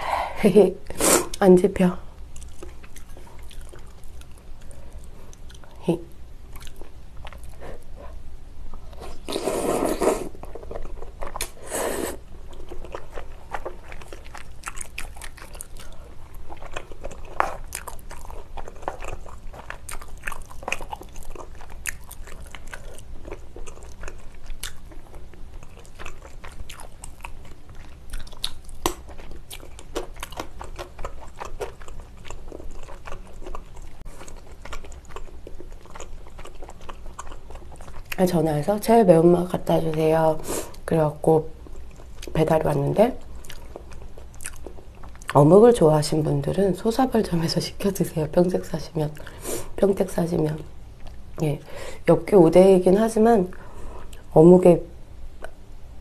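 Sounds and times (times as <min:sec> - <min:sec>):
wet chewing and mouth sounds: 0:02.2 - 0:05.8, 0:06.5 - 0:39.0, 0:39.6 - 0:45.6, 0:50.9 - 0:51.5.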